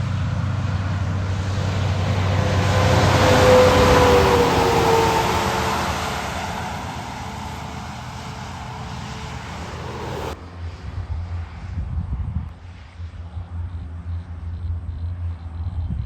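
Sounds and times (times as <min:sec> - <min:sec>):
truck tyres hissing on wet road: 0:00.0 - 0:10.4
truck engine: 0:00.0 - 0:10.8
low uneven rumble: 0:00.0 - 0:14.9.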